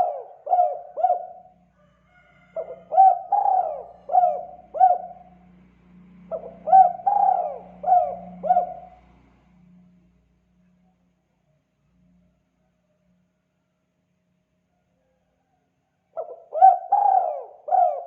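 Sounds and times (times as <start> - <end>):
dove cooing: 0.0 - 1.6, 2.5 - 5.4, 6.3 - 9.0, 16.2 - 18.0.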